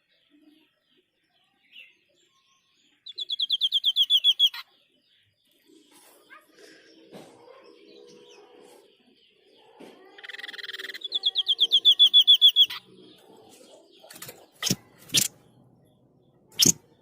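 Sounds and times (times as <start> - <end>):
bird buzzy rattle: 14.0 - 15.4, 16.6 - 16.8
sharp clicks: 14.1 - 15.4.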